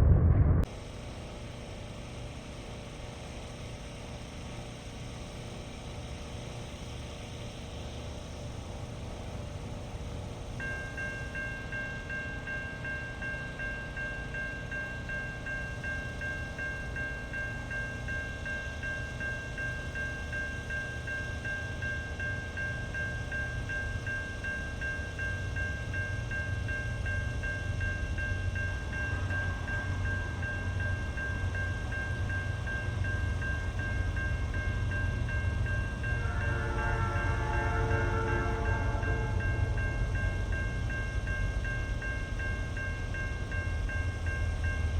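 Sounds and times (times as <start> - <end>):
freight train rumble: 0.0 - 44.9
high-pitched ringing tones: 10.2 - 44.9.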